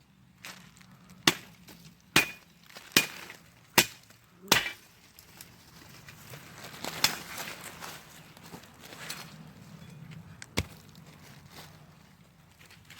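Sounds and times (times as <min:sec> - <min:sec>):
blade chopping into wood: 0:01.2 - 0:01.6, 0:02.2 - 0:04.8.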